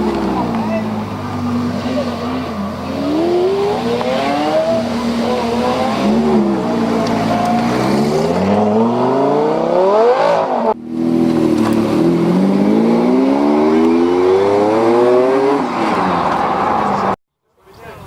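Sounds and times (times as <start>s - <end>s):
car engine accelerating hard: 0.0s - 17.2s.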